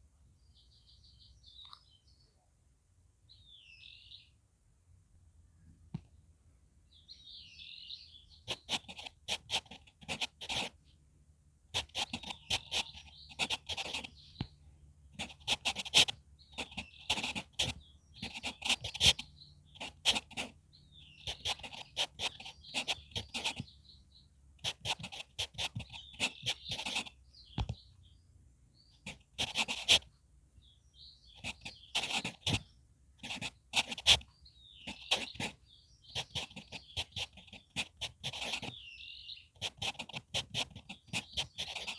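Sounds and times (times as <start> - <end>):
pencil scratching on paper: 8.5 - 10.8, 11.8 - 14.2, 15.2 - 20.6, 21.2 - 23.7, 24.6 - 27.2, 29.0 - 30.1, 31.3 - 38.8, 39.6 - 41.9.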